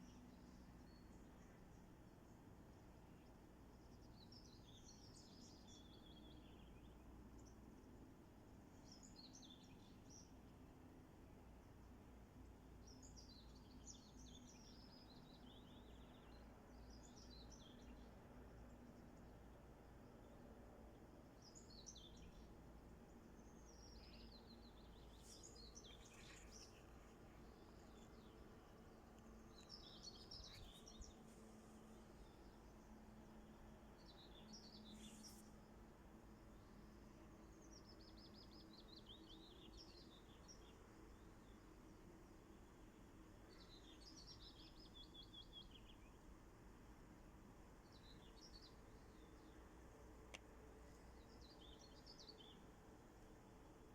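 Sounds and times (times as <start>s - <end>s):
low background hiss: 0.0s - 53.9s
low background hum: 0.0s - 53.9s
songbird chirping and trilling: 3.1s - 7.6s, 21.3s - 35.7s, 36.5s - 42.6s, 43.4s - 46.2s, 50.3s - 52.9s.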